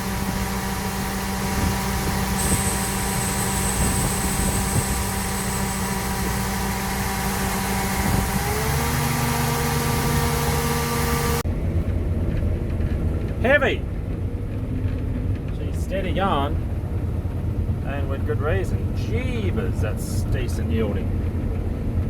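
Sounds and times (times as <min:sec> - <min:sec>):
combine harvester humming: 0:00.0 - 0:22.0
high hiss: 0:02.3 - 0:07.5.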